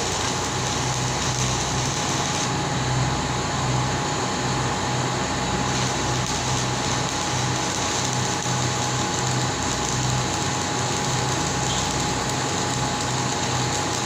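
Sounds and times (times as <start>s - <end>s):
low machine hum: 0.0s - 14.0s
machinery hiss: 5.6s - 14.0s.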